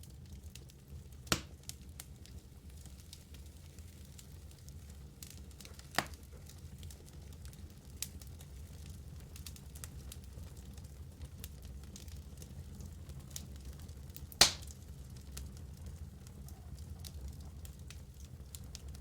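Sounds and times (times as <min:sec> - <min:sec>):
low steady fire rumble: 0:00.0 - 0:19.0
logs crackling and popping: 0:00.1 - 0:19.0
loud sharp pop: 0:14.4 - 0:14.7.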